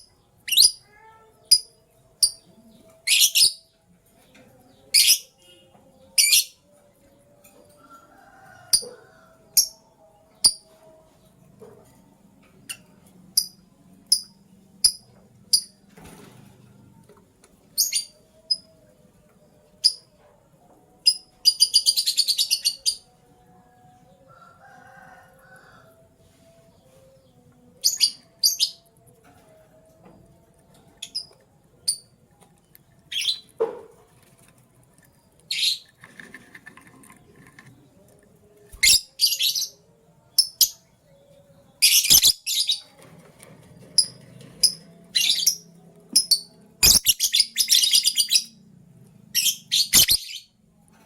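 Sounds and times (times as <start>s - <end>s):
lovebirds chirping: 44.0s - 48.5s, 49.4s - 50.5s.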